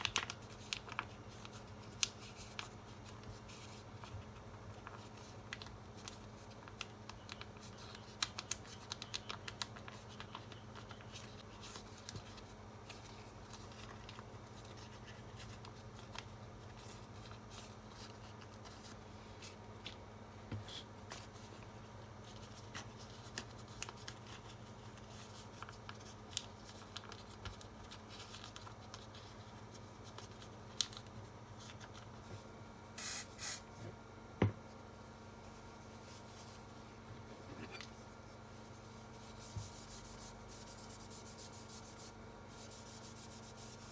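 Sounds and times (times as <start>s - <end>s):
low electrical hum: 0.0s - 43.9s
short hissing bursts: 33.0s - 33.7s.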